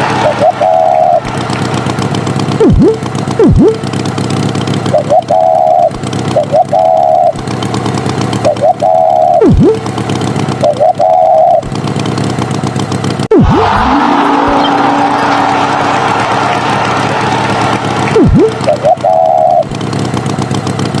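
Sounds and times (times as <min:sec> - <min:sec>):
swooping sound effects: 0:00.0 - 0:03.9, 0:08.5 - 0:09.8, 0:13.3 - 0:19.7
cartoon engine running: 0:00.0 - 0:21.0
horn-like toots: 0:13.3 - 0:18.8.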